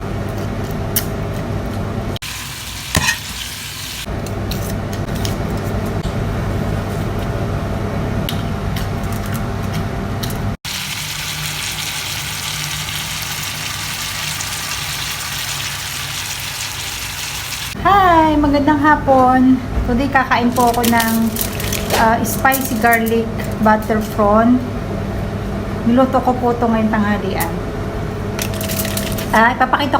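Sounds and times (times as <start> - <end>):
food sizzling in a frying pan: 2.2 - 4.1, 10.7 - 17.8.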